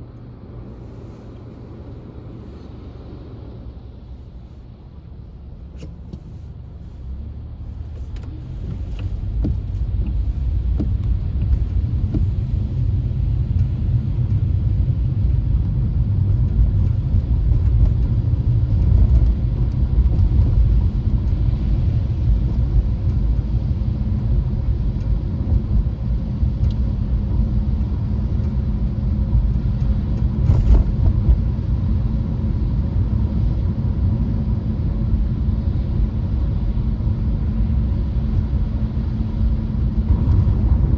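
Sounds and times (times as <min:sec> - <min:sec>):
car driving rumble: 0:00.0 - 0:40.9.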